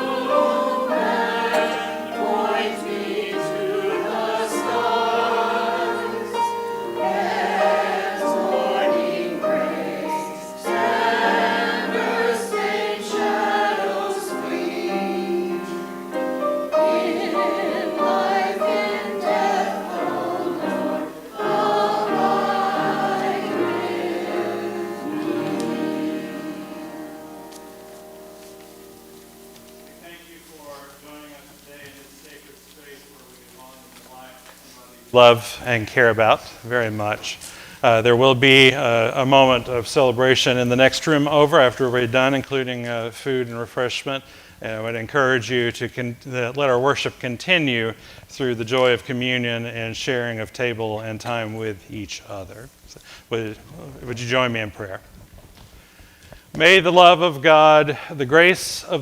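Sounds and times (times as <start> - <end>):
choir singing sacred music: 0.0 - 31.5.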